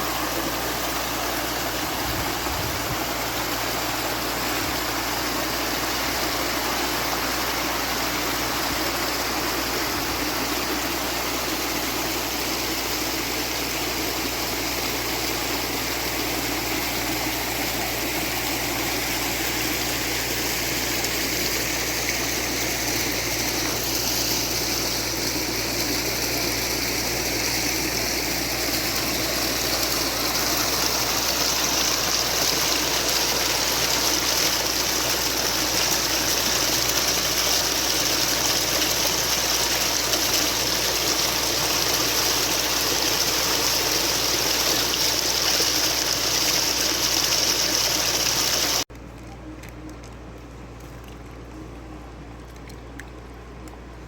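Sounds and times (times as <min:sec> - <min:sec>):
running water rushing: 0:00.0 - 0:48.9.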